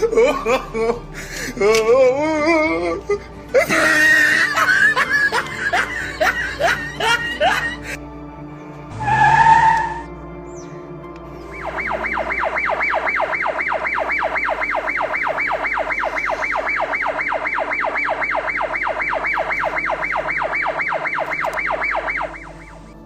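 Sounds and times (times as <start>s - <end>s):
electronic siren yelping: 8.9s - 10.1s, 11.5s - 23.0s.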